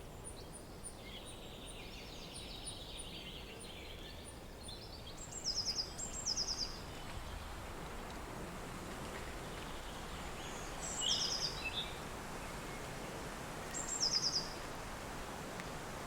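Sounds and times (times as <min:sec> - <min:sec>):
lower bird chirping call: 0:00.0 - 0:07.0, 0:09.6 - 0:12.0, 0:13.7 - 0:14.6
steady wind noise: 0:06.1 - 0:16.0.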